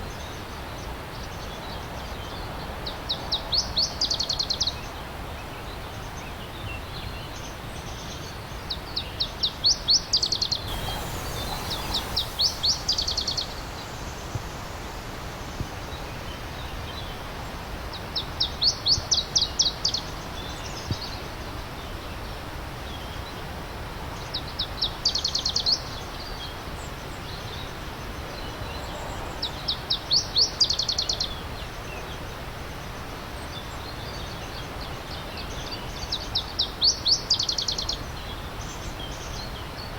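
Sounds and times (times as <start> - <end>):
songbird singing: 10.6 - 15.6
stream rushing: 10.7 - 16.3.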